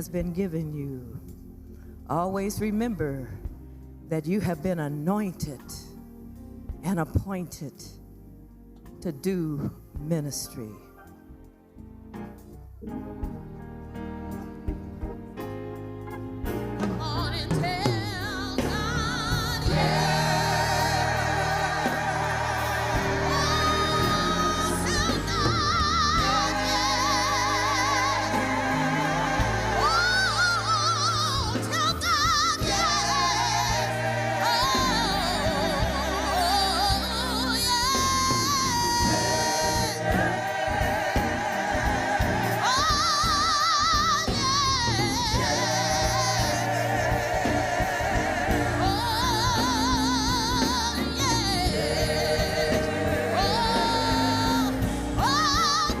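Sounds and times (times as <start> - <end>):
instrumental accompaniment: 10.9 - 56.0
gospel singing with vibrato: 16.7 - 56.0.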